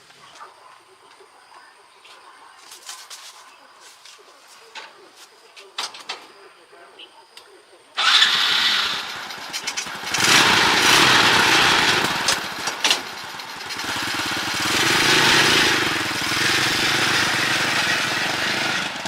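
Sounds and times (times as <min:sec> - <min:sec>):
small engine running unevenly: 0:08.0 - 0:19.0.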